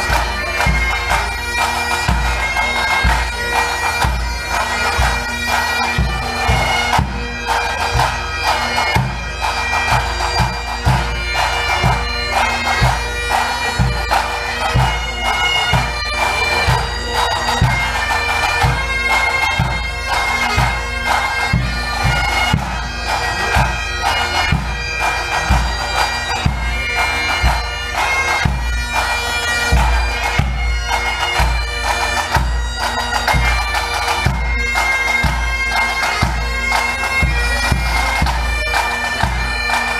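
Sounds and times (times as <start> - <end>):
bagpipes melody with drones: 0.0 - 39.9
drums beating rhythm: 0.0 - 39.9.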